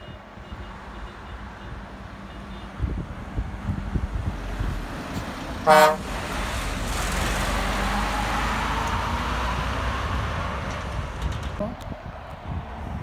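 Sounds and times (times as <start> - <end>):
road vehicle passing: 0.3 - 13.0
vehicle horn blast: 5.6 - 6.1.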